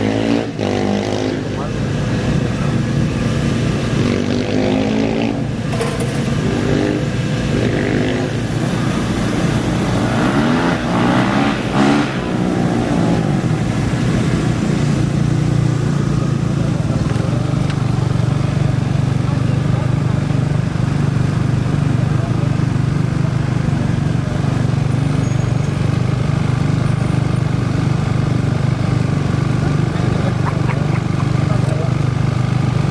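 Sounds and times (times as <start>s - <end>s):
engine revving up: 0.0s - 18.6s
low engine drone: 0.0s - 32.9s.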